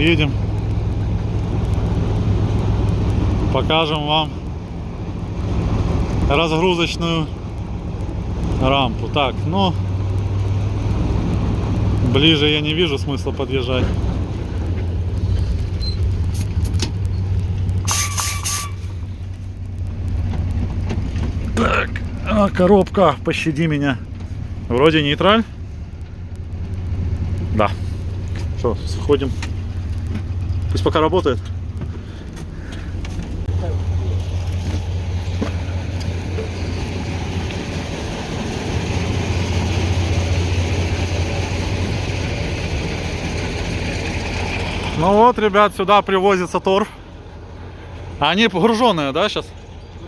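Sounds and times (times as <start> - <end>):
locomotive diesel engine idling: 0.0 - 50.0
high whistling hiss: 17.8 - 19.0.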